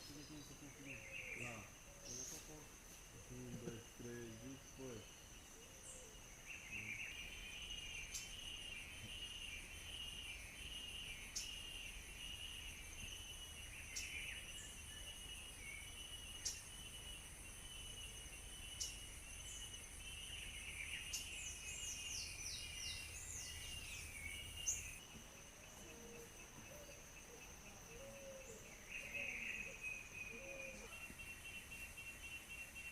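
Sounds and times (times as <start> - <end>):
birds calling: 0.0 - 2.6, 17.8 - 32.9
high-pitched insect trill: 0.0 - 32.9.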